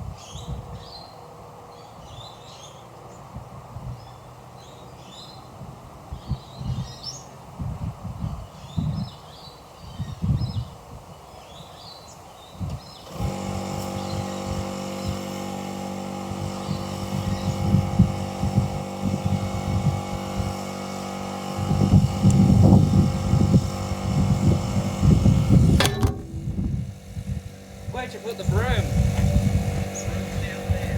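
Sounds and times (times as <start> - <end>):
wind buffeting microphone: 0.0 - 1.0, 3.3 - 4.2, 5.6 - 11.3, 16.2 - 20.7, 21.5 - 30.9
birds chirping: 0.2 - 3.3, 13.8 - 15.3, 16.6 - 17.8
motor running steadily: 12.7 - 30.9.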